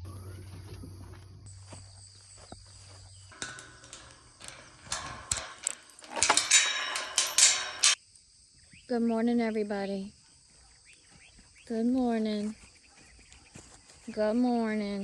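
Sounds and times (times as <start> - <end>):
footsteps crunching: 0.0 - 7.3, 10.4 - 15.0
rustling and scraping: 0.2 - 8.0.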